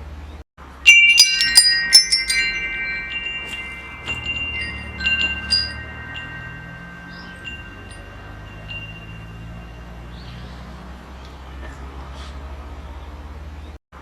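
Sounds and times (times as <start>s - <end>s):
metal wind chime ringing: 0.8s - 10.6s.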